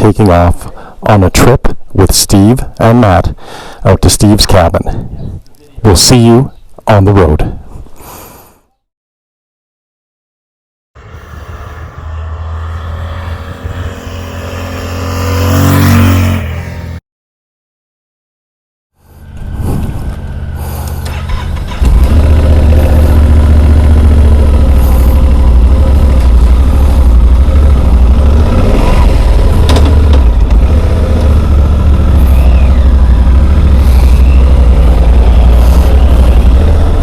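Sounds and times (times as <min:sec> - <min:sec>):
motorcycle engine running: 0:11.0 - 0:17.0, 0:19.2 - 0:37.0.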